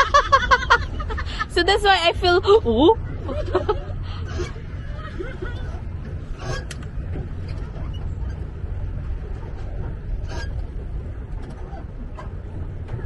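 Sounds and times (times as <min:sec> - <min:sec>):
steady low rumble: 0:00.0 - 0:13.0
pedal mechanism squeaking: 0:04.2 - 0:13.0.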